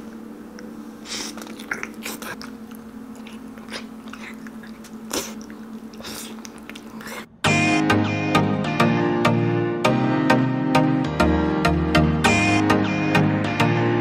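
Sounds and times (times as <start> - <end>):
steady low hum: 0.0 - 10.5
person chewing with lip smacks: 0.5 - 7.3
loud music: 7.4 - 14.0.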